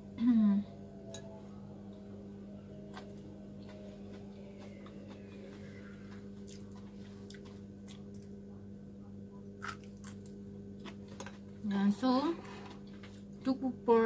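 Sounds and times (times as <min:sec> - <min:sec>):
steady low hum: 0:00.0 - 0:14.0
crunchy chewing: 0:02.9 - 0:08.4, 0:09.6 - 0:11.3.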